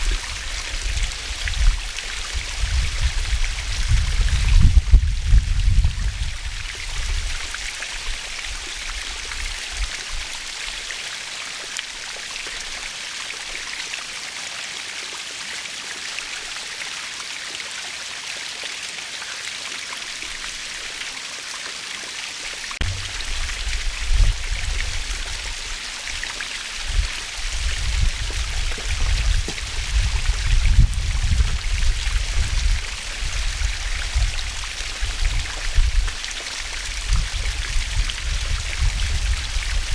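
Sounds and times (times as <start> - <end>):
low gusty rumble: 22.8 - 36.2
waterfall rushing: 22.8 - 36.9.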